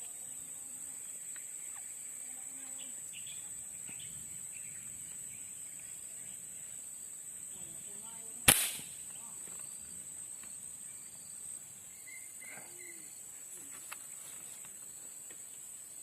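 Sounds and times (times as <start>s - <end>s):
faint bird chirps: 0.0s - 8.4s, 10.8s - 14.6s
high insect drone: 0.0s - 16.0s
air rifle shot: 8.4s - 9.0s.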